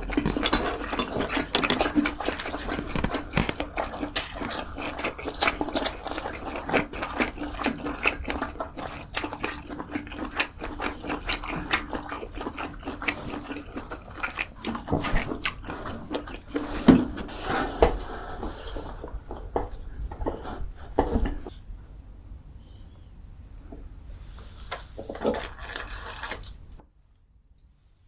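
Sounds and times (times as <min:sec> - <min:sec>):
wet chewing and mouth smacks: 0:00.0 - 0:17.3.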